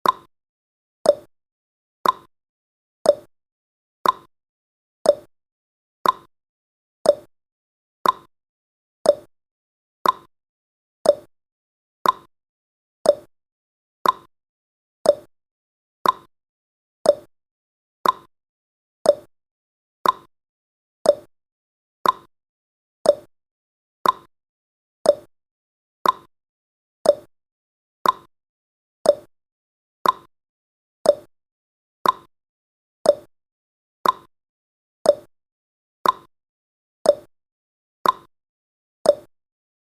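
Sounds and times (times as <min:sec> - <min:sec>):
clock ticking: 0:02.0 - 0:02.3, 0:04.0 - 0:04.3, 0:06.0 - 0:06.3, 0:08.0 - 0:08.3, 0:10.0 - 0:10.3, 0:12.0 - 0:12.3, 0:14.0 - 0:14.3, 0:15.1 - 0:15.3, 0:16.0 - 0:16.3, 0:18.0 - 0:18.3, 0:20.0 - 0:20.3, 0:22.0 - 0:22.3, 0:24.0 - 0:24.3, 0:25.1 - 0:25.3, 0:26.0 - 0:26.3, 0:27.1 - 0:27.3, 0:28.0 - 0:28.3, 0:29.1 - 0:29.3, 0:30.0 - 0:30.3, 0:32.0 - 0:32.3, 0:33.1 - 0:33.3, 0:34.0 - 0:34.3, 0:36.0 - 0:36.3, 0:38.0 - 0:38.3.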